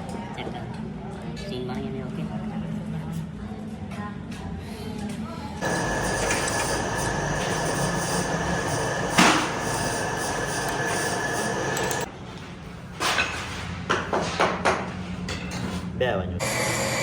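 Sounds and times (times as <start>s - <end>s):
mechanical noise with high whine: 5.4s - 13.0s, 16.4s - 17.0s.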